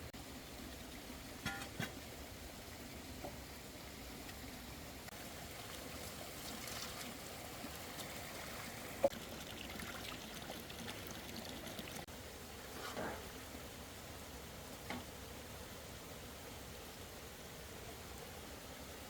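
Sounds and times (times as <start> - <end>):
water trickling: 0.1 - 12.1.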